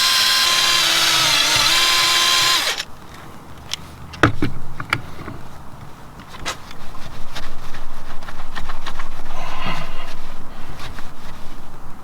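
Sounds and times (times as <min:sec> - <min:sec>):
drill motor whine: 0:00.0 - 0:02.8.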